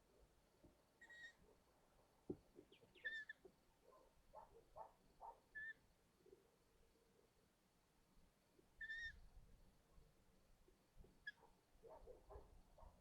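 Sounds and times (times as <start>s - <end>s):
owl high calls: 1.0s - 1.4s, 2.9s - 3.4s, 5.5s - 5.8s, 8.8s - 9.2s.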